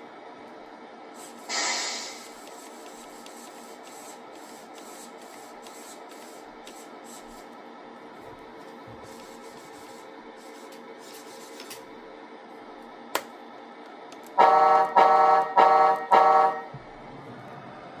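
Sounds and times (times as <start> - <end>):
truck air horn blasts: 14.4 - 16.7.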